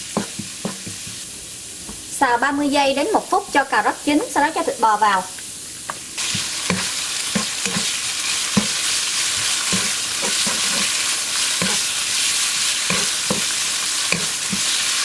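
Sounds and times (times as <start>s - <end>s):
meat sizzling in a wok: 0.0s - 15.0s
spatula knocking and scraping pan: 0.1s - 1.2s, 6.2s - 12.0s, 12.8s - 14.8s.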